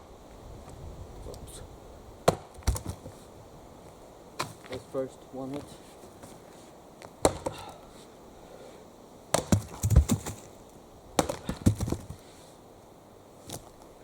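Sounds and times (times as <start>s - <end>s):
axe chopping wood: 2.2s - 3.0s, 7.2s - 7.7s, 9.3s - 10.4s, 11.2s - 12.1s.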